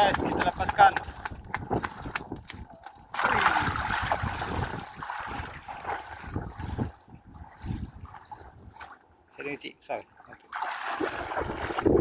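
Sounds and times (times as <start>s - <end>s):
wind rumble on microphone: 0.0s - 8.9s, 11.0s - 12.0s
water sloshing: 0.0s - 12.0s
large splash in water: 3.1s - 6.9s, 10.5s - 12.0s.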